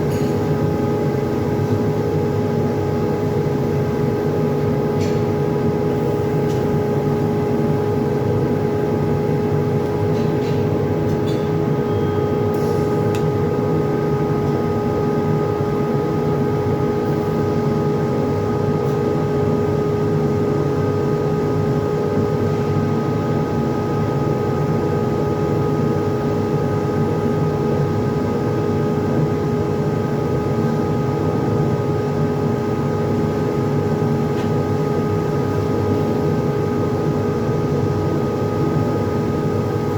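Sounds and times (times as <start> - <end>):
welding machine humming tone: 5.8 - 19.8.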